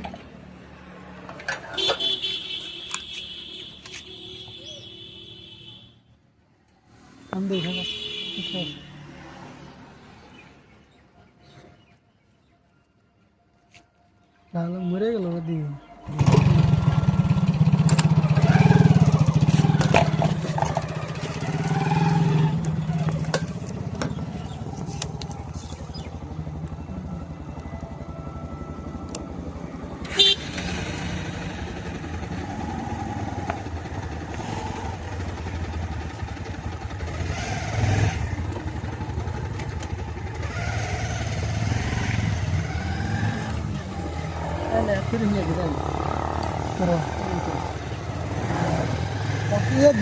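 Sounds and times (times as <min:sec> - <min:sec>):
motorcycle engine running: 0:16.1 - 0:50.0.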